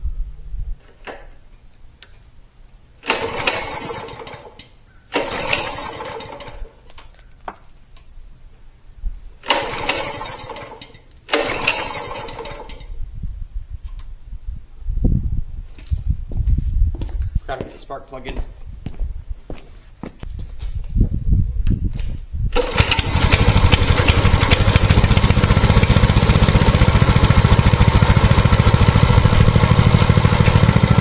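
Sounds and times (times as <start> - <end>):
small engine turning over: 3.0 - 6.8, 9.4 - 12.9, 22.5 - 31.0
recoil starter pulls: 3.0 - 7.2, 9.4 - 13.0, 22.5 - 31.0.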